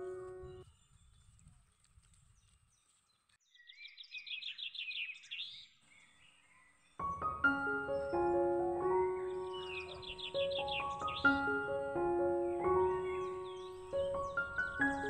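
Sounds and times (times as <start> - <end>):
faint outdoor background: 0.0 - 15.0
songbird chirping rapidly: 2.4 - 15.0
background music: 7.0 - 15.0.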